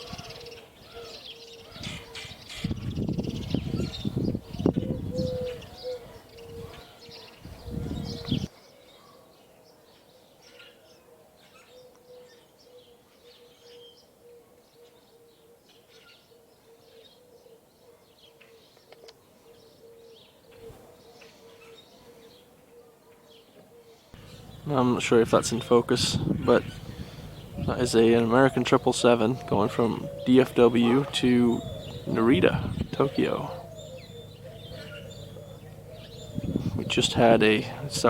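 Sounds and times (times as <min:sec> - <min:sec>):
birds chirping: 0:00.0 - 0:38.0
wind rumbling on microphone: 0:01.7 - 0:08.5, 0:24.2 - 0:38.0
faint steady hum: 0:24.2 - 0:38.0.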